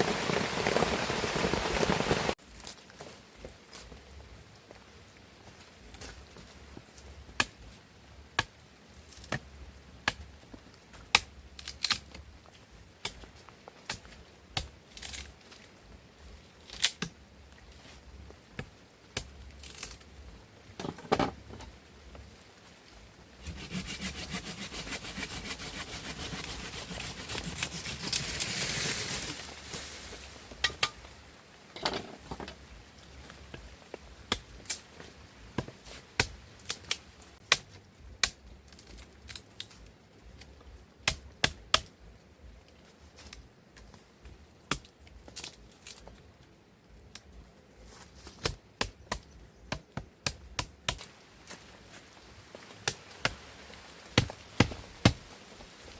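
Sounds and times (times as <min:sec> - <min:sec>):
rasping sawing scrape: 0:23.4 - 0:29.3.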